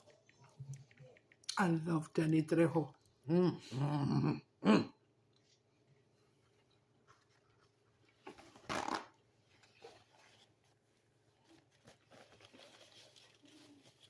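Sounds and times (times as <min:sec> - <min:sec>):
eating clicks and smacks: 0:00.0 - 0:01.7.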